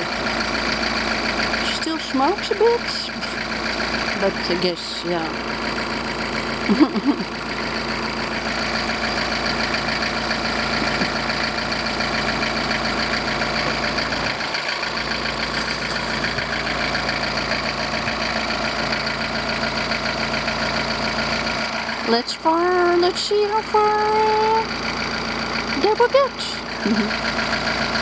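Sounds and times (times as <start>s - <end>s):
van engine idling: 0.0s - 28.0s.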